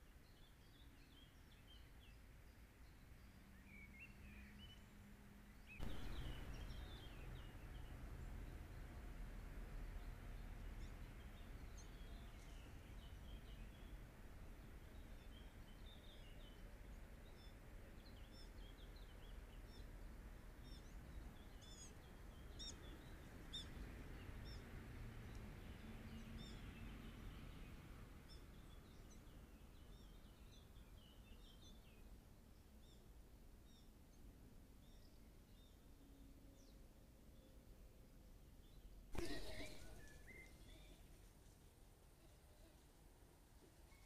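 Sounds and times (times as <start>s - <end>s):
birds chirping: 5.8s - 8.0s, 39.2s - 41.1s.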